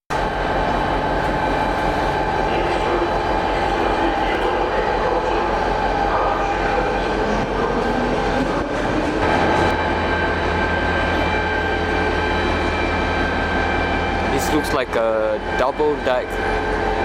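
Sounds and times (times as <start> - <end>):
locomotive engine drone: 0.1 - 17.0.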